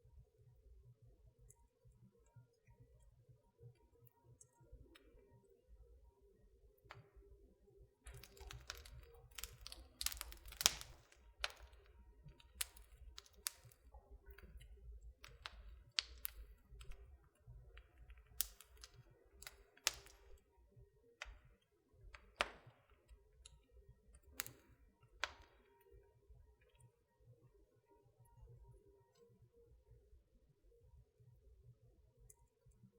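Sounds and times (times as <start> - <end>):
wood fire crackling: 8.0 - 26.0.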